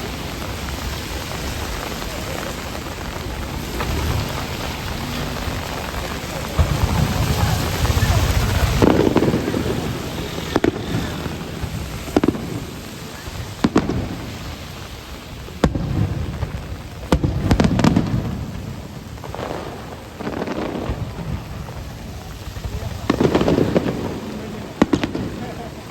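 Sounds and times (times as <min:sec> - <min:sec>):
deep rolling booms: 0:00.0 - 0:25.8
firework shells cracking: 0:00.0 - 0:25.9
rain hissing: 0:00.0 - 0:25.9.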